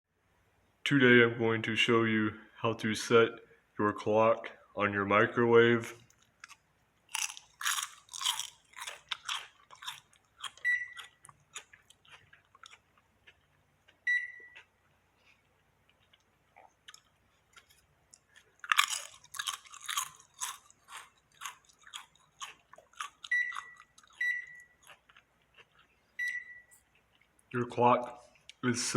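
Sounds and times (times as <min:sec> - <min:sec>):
microwave beep: 0:10.6 - 0:11.0, 0:14.0 - 0:14.6, 0:23.3 - 0:24.8, 0:26.2 - 0:26.8.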